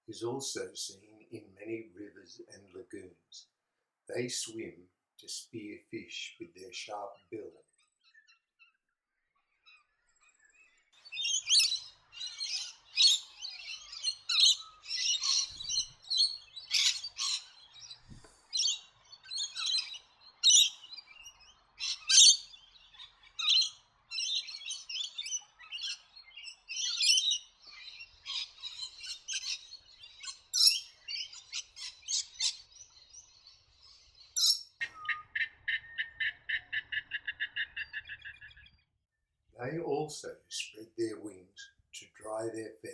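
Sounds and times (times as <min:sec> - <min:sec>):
small birds chirping: 0:00.0 - 0:39.0
rapid bird trill: 0:09.4 - 0:38.8.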